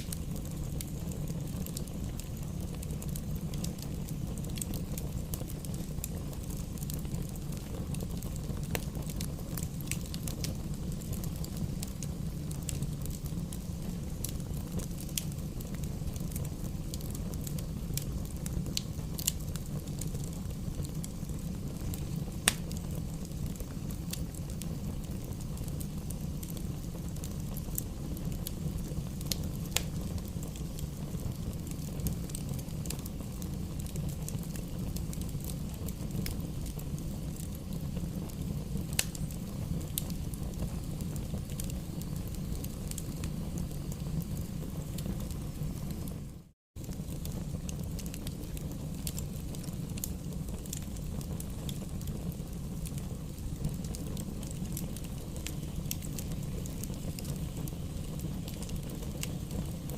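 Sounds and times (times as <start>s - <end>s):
fire crackling and popping: 0.0s - 59.9s
fire rumbling: 0.0s - 59.9s.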